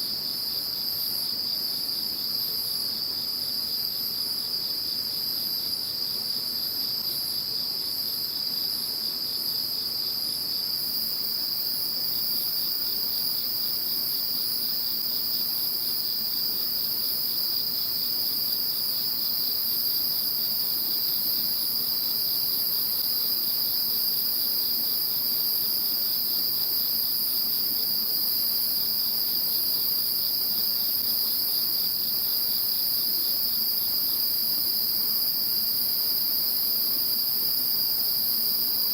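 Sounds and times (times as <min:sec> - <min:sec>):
crickets trilling: 0:06.8 - 0:38.9.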